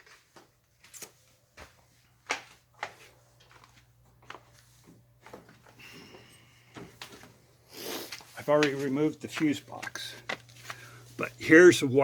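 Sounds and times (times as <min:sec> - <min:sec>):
faint steady hum: 0:02.8 - 0:12.0.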